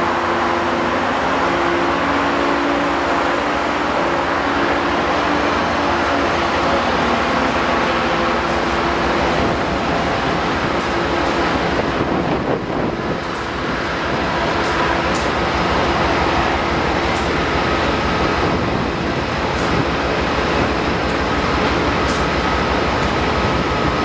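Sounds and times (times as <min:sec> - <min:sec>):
train rumbling past: 0:00.0 - 0:24.0.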